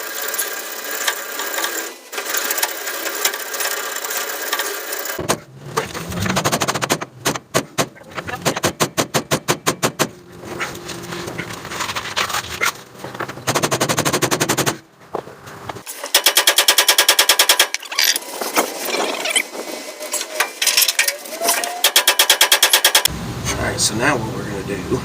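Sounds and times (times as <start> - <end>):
rapid metal-on-metal striking: 15.9 - 17.9, 21.8 - 23.1.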